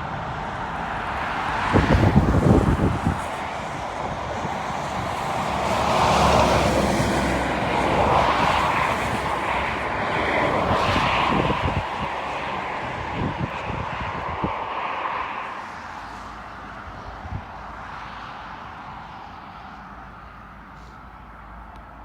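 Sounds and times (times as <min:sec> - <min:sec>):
jet engines roaring: 0:00.0 - 0:20.2
faint engine whine: 0:06.5 - 0:22.0.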